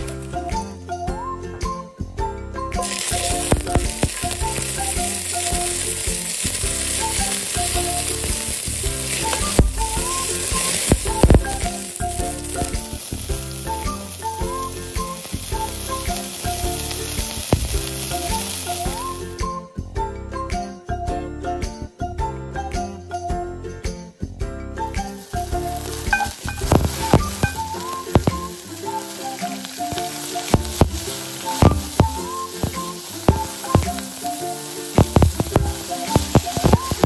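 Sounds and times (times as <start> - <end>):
onions sizzling in hot oil: 0.0 - 0.7, 2.8 - 19.3, 25.0 - 37.0
light background music: 0.0 - 37.0
oil popping: 2.8 - 19.0, 25.0 - 37.0.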